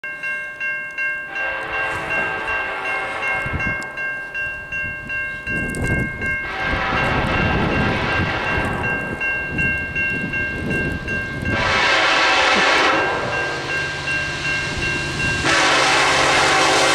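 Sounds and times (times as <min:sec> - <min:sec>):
locomotive air horn chord: 0:01.3 - 0:03.9, 0:06.4 - 0:08.9, 0:11.4 - 0:16.9.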